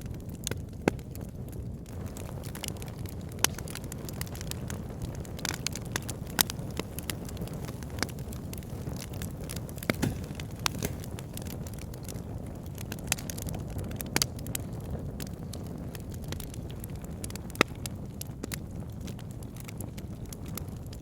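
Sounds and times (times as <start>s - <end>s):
fire pops and snaps: 0.4s - 21.0s
low rush of burning: 6.7s - 11.8s.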